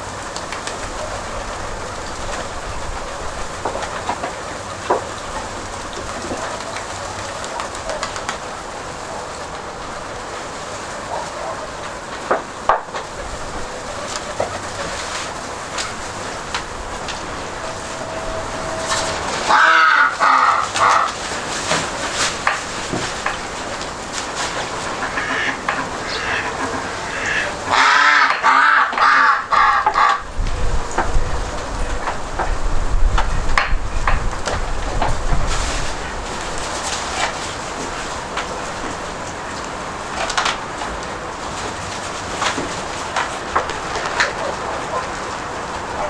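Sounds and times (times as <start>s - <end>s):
steady background hiss: 0.0s - 46.0s
wind rushing over microphone: 11.7s - 27.7s, 30.2s - 40.2s
crows cawing: 13.6s - 21.6s, 24.6s - 30.3s.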